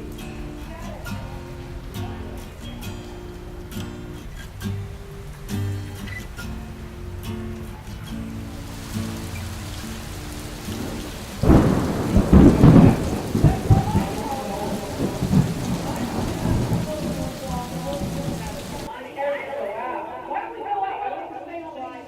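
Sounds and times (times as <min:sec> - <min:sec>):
steady rain: 0:00.0 - 0:19.0
thunder clap and rumble: 0:08.6 - 0:18.9.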